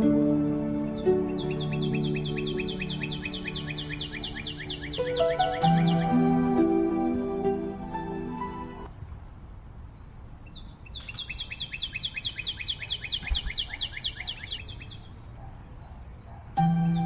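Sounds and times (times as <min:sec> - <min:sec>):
songbird trilling: 0:00.9 - 0:06.6, 0:10.5 - 0:15.2.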